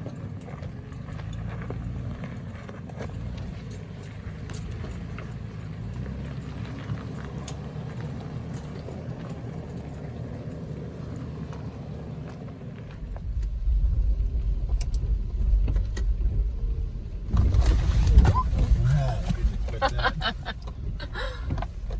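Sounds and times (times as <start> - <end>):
vehicle rumbling off-road: 0.0 - 21.9.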